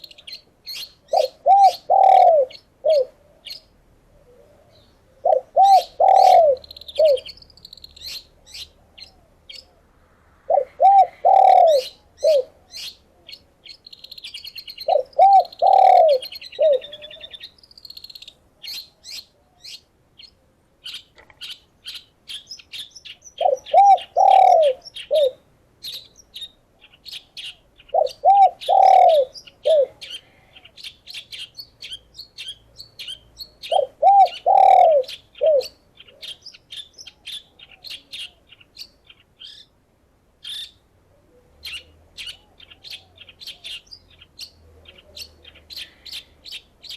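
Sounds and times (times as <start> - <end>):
songbirds chirping: 0.0 - 46.9
doves cooing: 1.0 - 7.3, 10.5 - 13.4, 14.8 - 17.5, 23.4 - 25.4, 27.4 - 30.9, 33.6 - 36.4.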